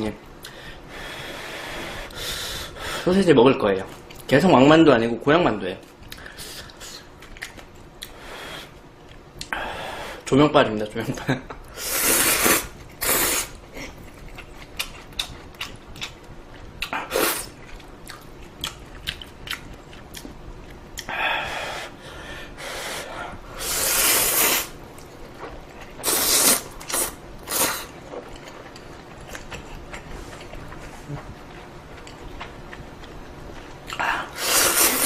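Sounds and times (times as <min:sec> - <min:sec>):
soft chewing: 0:05.9 - 0:08.2, 0:13.6 - 0:21.1, 0:26.8 - 0:35.0
person slurping noodles: 0:11.8 - 0:13.6, 0:23.6 - 0:24.7, 0:26.0 - 0:27.9, 0:34.2 - 0:35.0.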